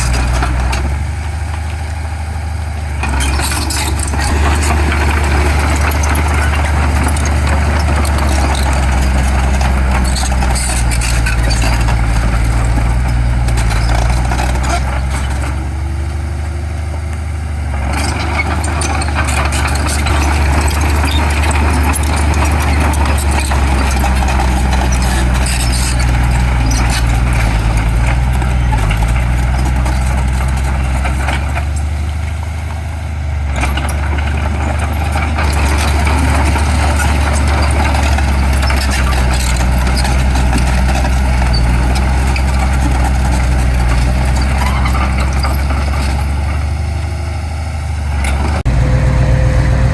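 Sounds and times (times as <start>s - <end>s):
heavy diesel machinery running: 0.0s - 49.9s.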